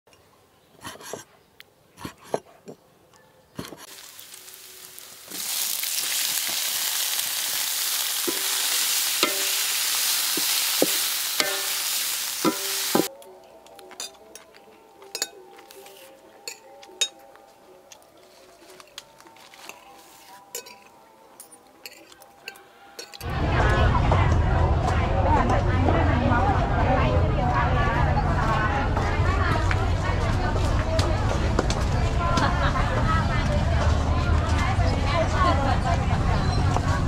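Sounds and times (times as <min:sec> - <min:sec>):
intestine frying in a wok: 0:03.8 - 0:13.1.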